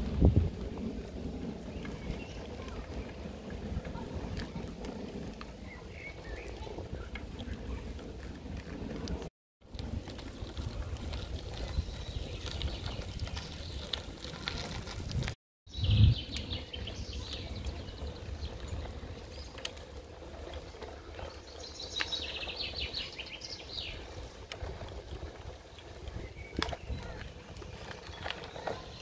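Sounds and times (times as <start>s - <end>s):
low microphone rumble: 0.0s - 19.5s
songbirds trilling: 21.1s - 24.3s.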